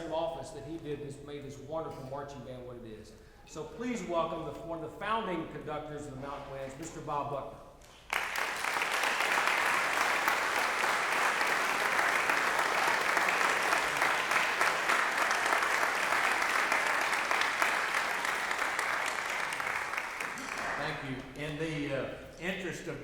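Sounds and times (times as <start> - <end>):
audience applauding: 8.1 - 21.0.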